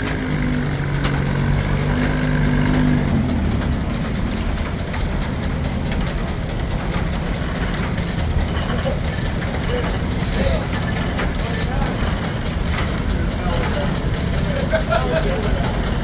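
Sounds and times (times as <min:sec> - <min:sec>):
sawmill machinery rumble and clatter: 0:00.0 - 0:16.0.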